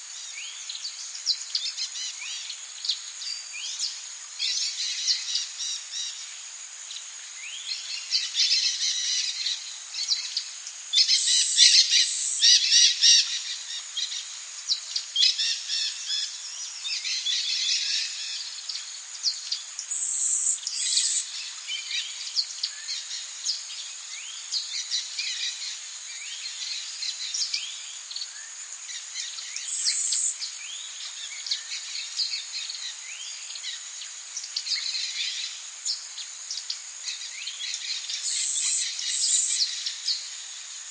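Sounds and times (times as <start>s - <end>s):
high insect drone: 0.0s - 40.9s
loud high insect buzzes: 19.2s - 21.4s, 29.6s - 30.4s, 38.2s - 40.9s
birds calling and chirping: 37.7s - 40.2s.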